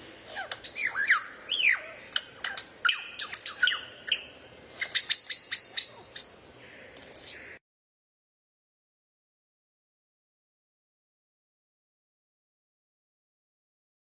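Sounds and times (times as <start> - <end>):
songbird chirping and whistling: 0.3 - 6.4.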